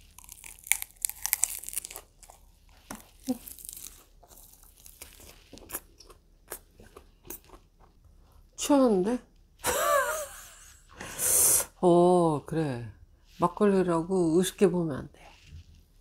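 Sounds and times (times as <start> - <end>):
crunching lettuce: 0.0 - 7.9
soft chewing: 0.0 - 8.6.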